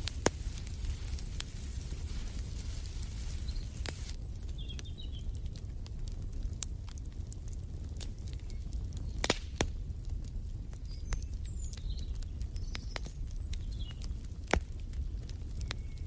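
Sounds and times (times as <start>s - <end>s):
low fire rumble: 0.0s - 16.0s
wood fire crackling and popping: 0.0s - 16.0s.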